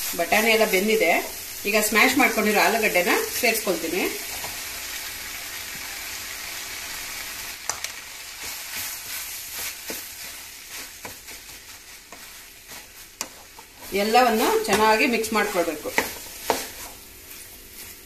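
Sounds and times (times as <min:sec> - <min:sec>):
food sizzling in a pan: 0:00.0 - 0:18.0
spatula tapping and scraping pan: 0:09.6 - 0:17.4.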